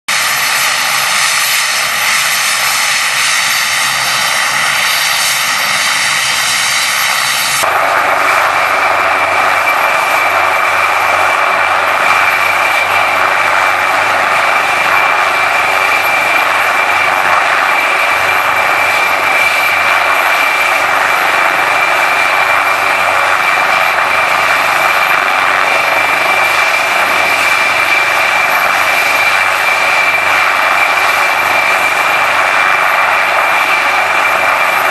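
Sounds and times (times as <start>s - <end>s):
helicopter turbine and rotor: 0.1s - 34.9s
high turbine whine: 0.1s - 34.9s.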